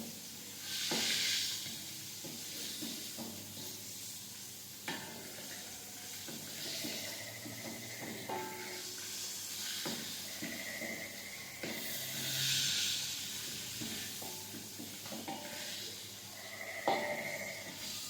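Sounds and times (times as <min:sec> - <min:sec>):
food sizzling in hot oil: 0:00.0 - 0:18.0
utensil knocking pan: 0:04.9 - 0:09.0, 0:13.7 - 0:15.6, 0:16.8 - 0:17.9.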